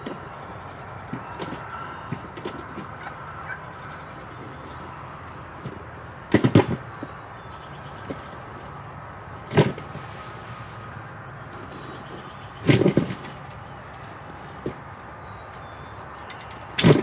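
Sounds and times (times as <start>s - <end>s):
wild turkeys calling: 0.2s - 5.2s.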